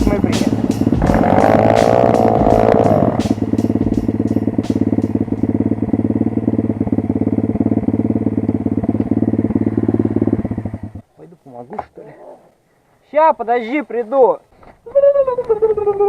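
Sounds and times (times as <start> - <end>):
motorbike engine idling: 0.0 - 11.0.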